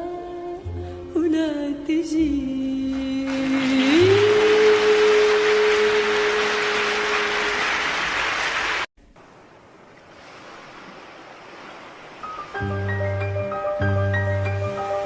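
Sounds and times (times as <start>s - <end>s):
sea waves rushing: 3.3s - 15.0s.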